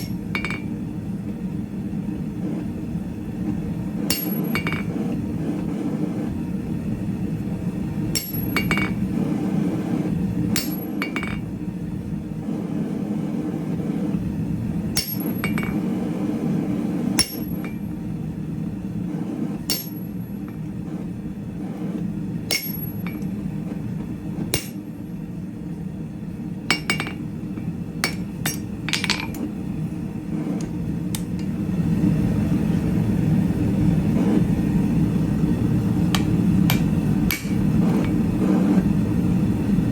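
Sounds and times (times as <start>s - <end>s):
hammer striking steel on anvil: 4.1s - 5.0s, 8.1s - 9.0s, 10.6s - 11.4s, 15.0s - 15.8s, 17.2s - 17.8s, 19.7s - 20.2s, 22.5s - 23.3s, 24.5s - 24.8s, 26.7s - 27.2s, 28.0s - 29.4s, 36.2s - 37.7s.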